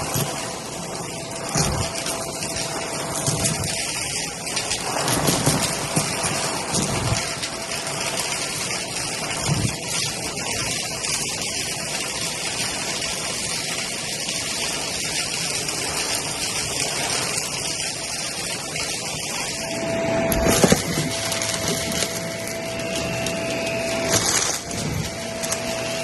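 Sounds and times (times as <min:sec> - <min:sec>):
vacuum cleaner running: 0:00.0 - 0:04.2, 0:19.3 - 0:26.0
debris rattling through vacuum: 0:00.0 - 0:08.8, 0:18.3 - 0:26.0.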